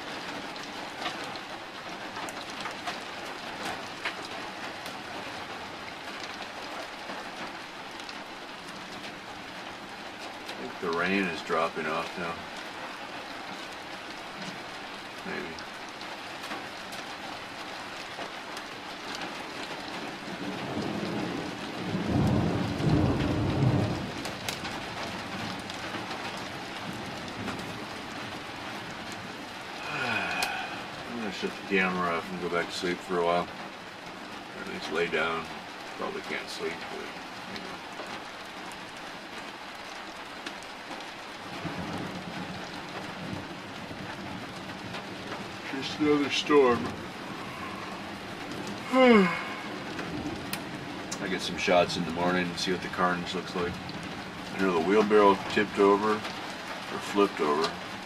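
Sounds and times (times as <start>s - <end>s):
raindrops ticking: 0.0s - 58.0s
steady rain: 0.0s - 58.0s
low rumble of thunder: 19.4s - 32.2s, 41.4s - 57.0s.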